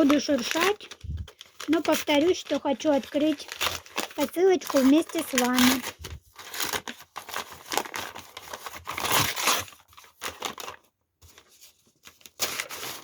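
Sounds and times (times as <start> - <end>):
parcel packaging torn and rustled: 0.0 - 13.0.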